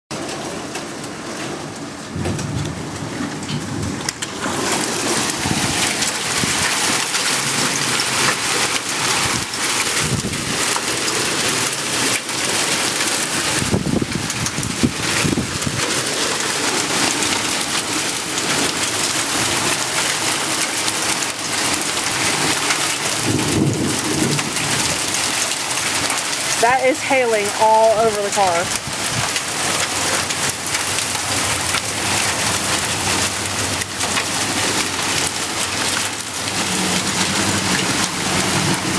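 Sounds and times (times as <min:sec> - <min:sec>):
hail and rain pelting a car: 0:00.1 - 0:38.9
thunder rolling: 0:02.1 - 0:06.9, 0:23.2 - 0:38.9.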